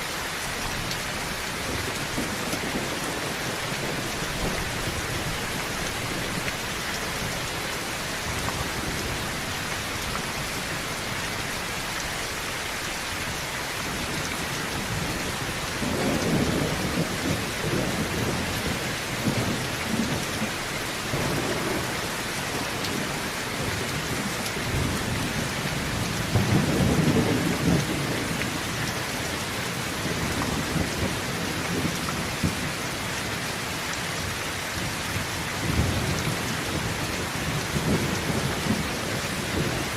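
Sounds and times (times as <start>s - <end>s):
heavy rain on a tin roof: 0.0s - 39.9s
thunder rumbling: 14.7s - 28.4s.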